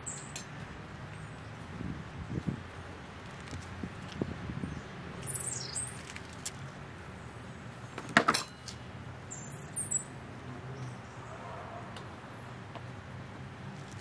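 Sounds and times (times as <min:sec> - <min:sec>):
garden birds chirping: 0:00.0 - 0:14.0.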